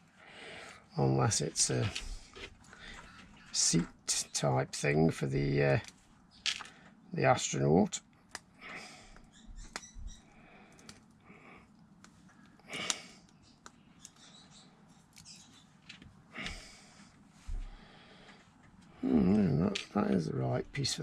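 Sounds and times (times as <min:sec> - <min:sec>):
plastic bricks clicking and rustling: 0:05.8 - 0:06.8.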